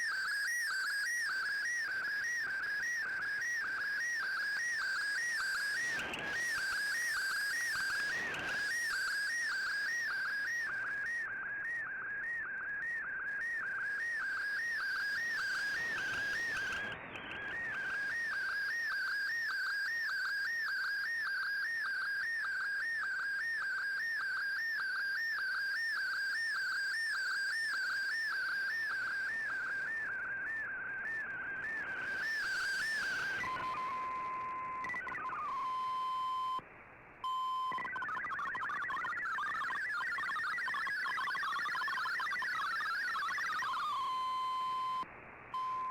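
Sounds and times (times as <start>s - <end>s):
warbling digital data signal: 32.3s - 36.6s, 37.3s - 45.0s.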